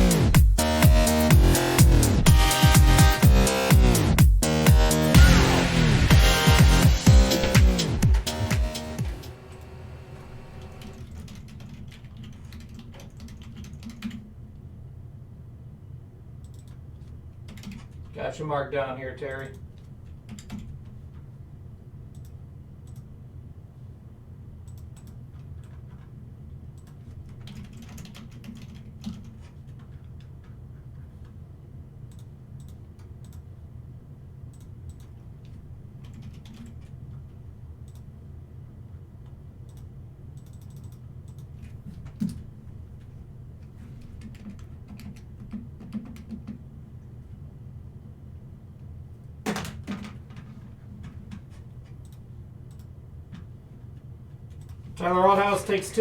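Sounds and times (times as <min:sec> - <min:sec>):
low hum: 0:01.3 - 0:11.1
keyboard typing clicks: 0:10.6 - 0:14.3, 0:16.4 - 0:16.8, 0:17.5 - 0:18.1, 0:19.4 - 0:20.8, 0:22.1 - 0:23.1, 0:24.7 - 0:26.0, 0:26.8 - 0:30.3, 0:32.1 - 0:33.4, 0:34.5 - 0:37.0, 0:39.6 - 0:42.4, 0:44.0 - 0:46.6, 0:51.3 - 0:52.9.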